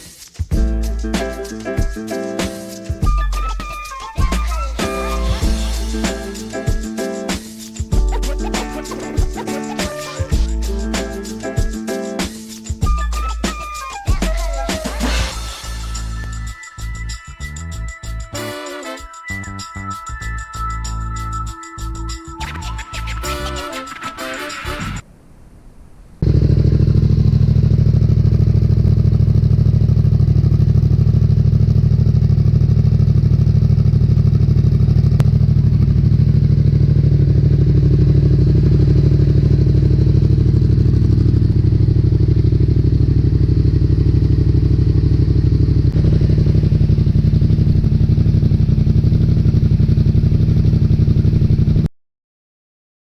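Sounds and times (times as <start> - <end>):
music: 0.0 - 25.0
motorcycle engine idling: 26.2 - 51.8.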